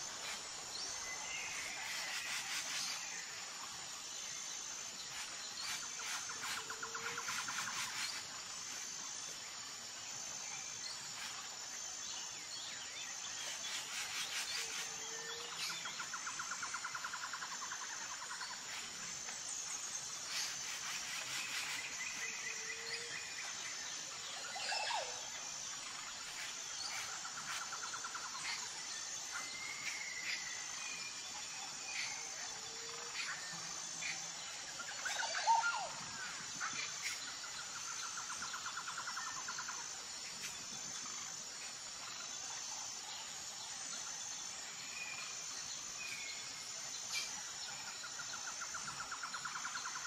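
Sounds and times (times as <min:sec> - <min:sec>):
high insect chirp: 0:00.0 - 0:50.0.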